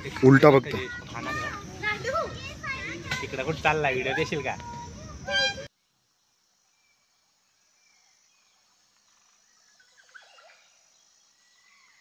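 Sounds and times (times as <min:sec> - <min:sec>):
faint bird chirps: 0:06.7 - 0:12.0.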